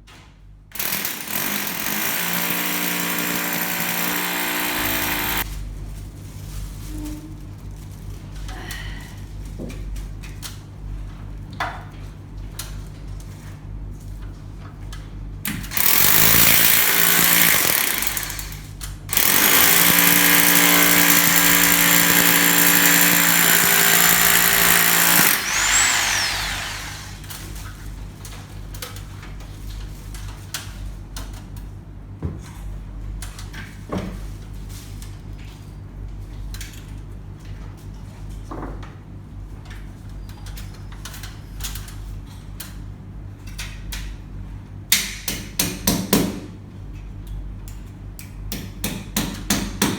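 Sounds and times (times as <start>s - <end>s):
power drill running: 0.8s - 5.4s, 15.7s - 27.3s.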